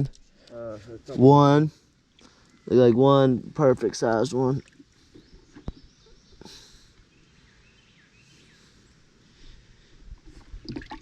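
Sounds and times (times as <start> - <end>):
soft bird chirps: 2.2 - 3.3, 4.5 - 9.9.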